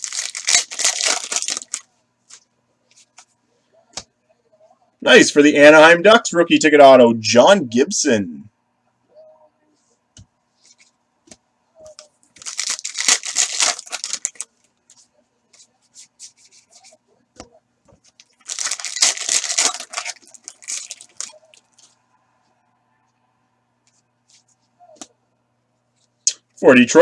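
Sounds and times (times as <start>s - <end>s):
card pack wrapper tearing: 0.0s - 1.8s, 12.4s - 14.5s, 18.2s - 21.5s
cards clicking and rustling: 0.0s - 3.3s, 10.6s - 17.0s, 18.0s - 21.9s.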